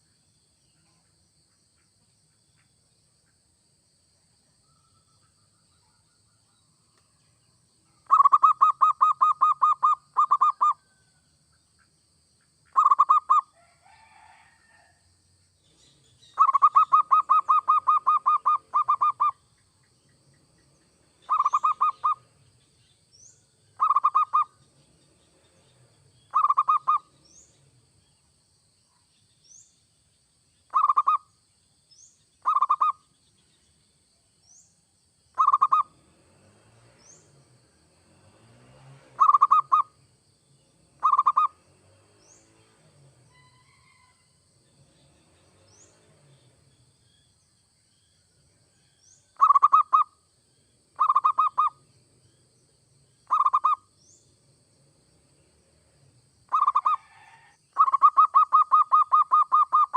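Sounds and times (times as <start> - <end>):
dove cooing: 8.1 - 10.8, 12.8 - 13.4, 16.4 - 19.3, 21.3 - 22.2, 23.8 - 24.5, 26.3 - 27.0, 35.4 - 35.9, 39.2 - 39.9, 41.0 - 41.6, 51.0 - 51.8, 53.3 - 53.8, 56.5 - 59.9.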